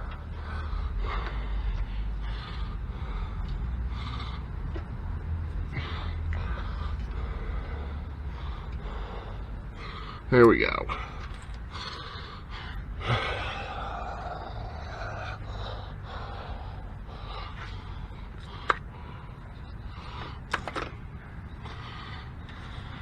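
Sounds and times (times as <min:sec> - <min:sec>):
steady background hum: 0:00.0 - 0:23.0
handling noise on car parts: 0:20.2 - 0:21.8.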